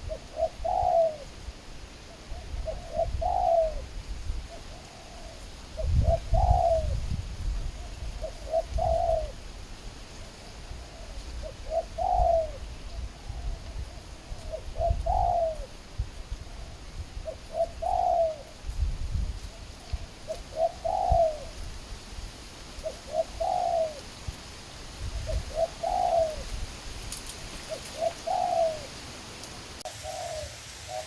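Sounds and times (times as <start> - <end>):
dove cooing: 0.0 - 1.4, 2.1 - 7.1, 7.8 - 9.5, 10.4 - 18.7, 19.4 - 21.7, 22.8 - 24.2, 25.0 - 26.6, 27.5 - 29.1, 29.8 - 31.0.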